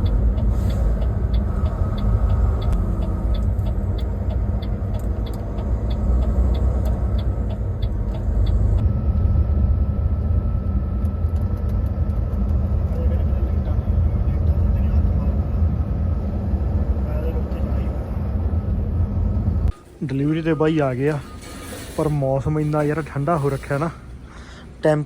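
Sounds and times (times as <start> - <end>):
light regular ticking: 0.0 - 8.8
truck engine rumble: 0.0 - 25.0.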